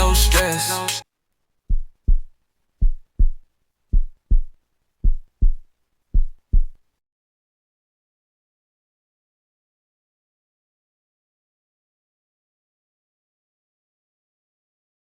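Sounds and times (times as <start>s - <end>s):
heartbeat thumps: 1.7s - 6.8s.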